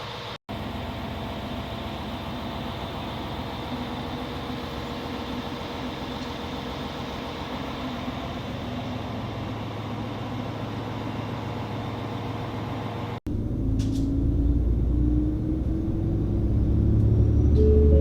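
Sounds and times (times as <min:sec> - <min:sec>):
train running hum: 0:00.0 - 0:18.0.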